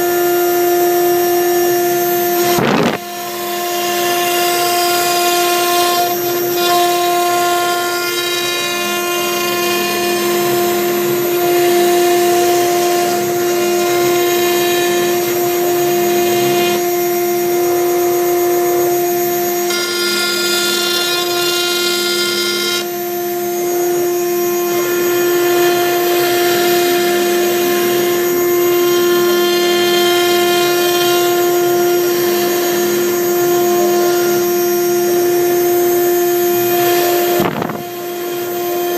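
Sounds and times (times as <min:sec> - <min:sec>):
router spindle whining: 0:00.0 - 0:38.9
bit engraving wood: 0:02.3 - 0:17.0, 0:18.4 - 0:23.9
axis motors whirring: 0:02.4 - 0:07.4, 0:37.0 - 0:38.9.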